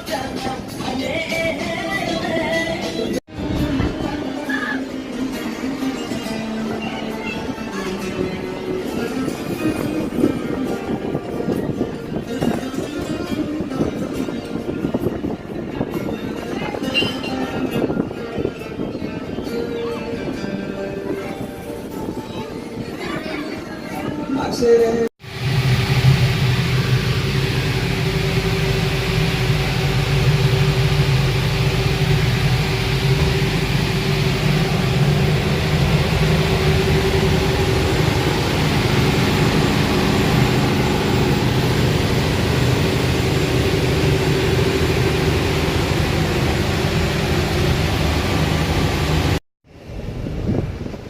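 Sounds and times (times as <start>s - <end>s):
boat diesel engine drone: 25.2s - 51.0s
rush of water noise: 25.2s - 51.0s.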